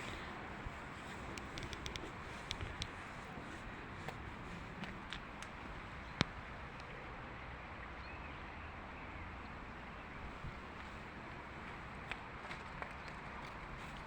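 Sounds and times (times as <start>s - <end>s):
outdoor background noise: 0.0s - 14.0s
faint clicks: 1.0s - 3.0s, 4.8s - 6.9s.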